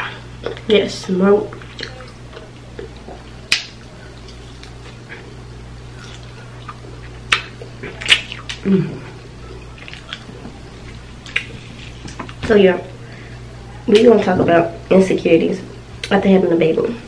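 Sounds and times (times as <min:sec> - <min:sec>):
closed-mouth hum: 0:00.0 - 0:17.0
steady low hum: 0:00.0 - 0:17.0
chewing meat: 0:01.5 - 0:12.4.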